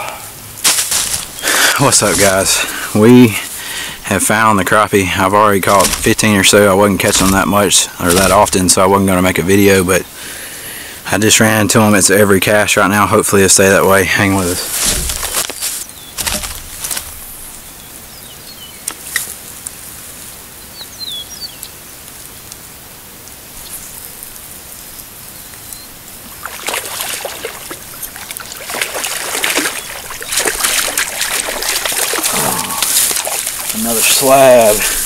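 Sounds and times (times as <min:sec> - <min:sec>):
rustling and splashing: 0:00.5 - 0:09.6, 0:13.5 - 0:18.0, 0:26.0 - 0:35.0
bird chirps: 0:17.5 - 0:19.0, 0:20.6 - 0:21.9
water trickling into a lake: 0:24.0 - 0:35.0.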